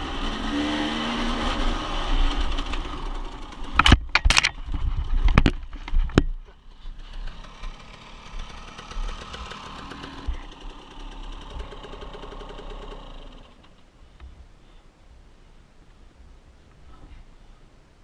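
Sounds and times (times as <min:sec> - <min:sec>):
dirt bike engine idling: 0:00.0 - 0:13.9.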